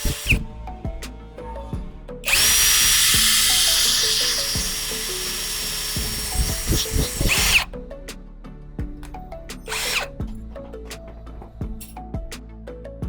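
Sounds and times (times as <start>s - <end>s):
power tool whining: 0.0s - 0.7s, 2.2s - 7.7s, 9.7s - 10.3s
background music: 0.0s - 13.0s.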